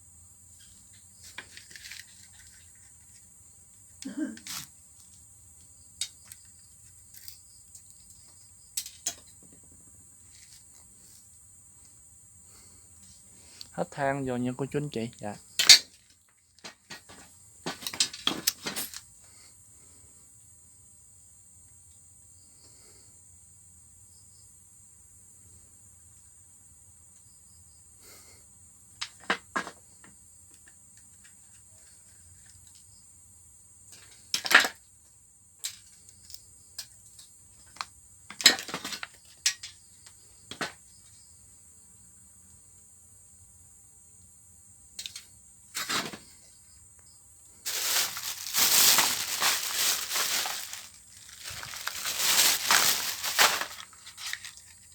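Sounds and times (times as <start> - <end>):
metal parts and tools clinking: 15.6 - 15.9, 47.7 - 54.7
crunching crinkling rustle: 47.6 - 54.9.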